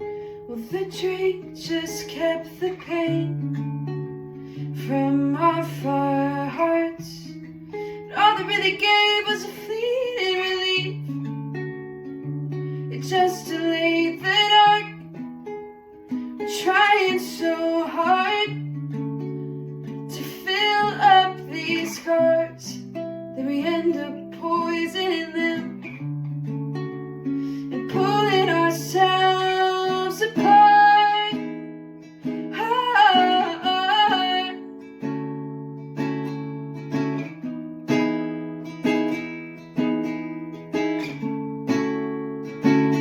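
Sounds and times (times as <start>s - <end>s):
woman singing: 0.0s - 11.7s, 12.5s - 15.3s, 16.1s - 35.7s
plucked acoustic guitar: 0.0s - 43.0s.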